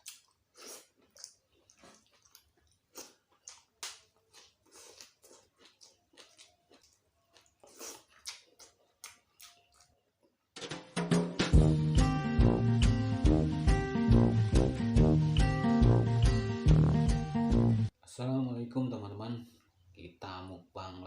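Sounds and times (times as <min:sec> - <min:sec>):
person chewing: 0:00.0 - 0:10.4.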